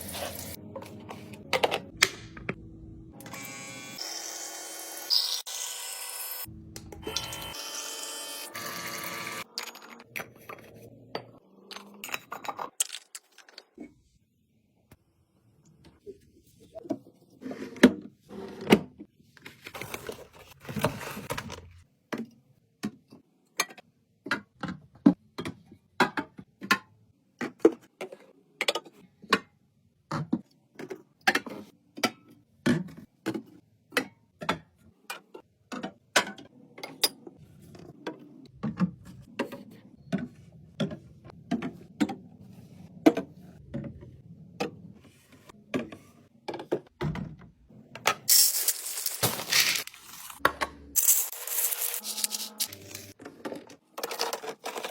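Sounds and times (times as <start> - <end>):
items set down with clicks and knocks: 0.0 - 2.6, 17.7 - 29.5, 48.0 - 54.9.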